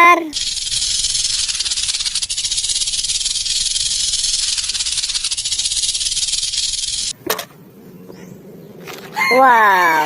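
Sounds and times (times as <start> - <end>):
rapid rattling hiss: 0.3 - 7.1.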